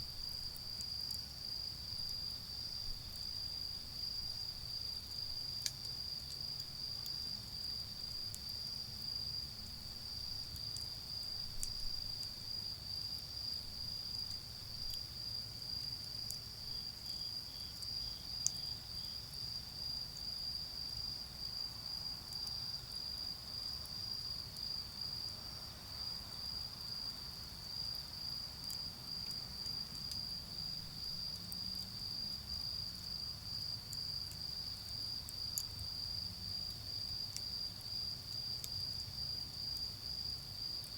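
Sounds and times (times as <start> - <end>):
charcoal fire crackling: 0.0 - 19.1
crickets trilling: 0.0 - 40.9.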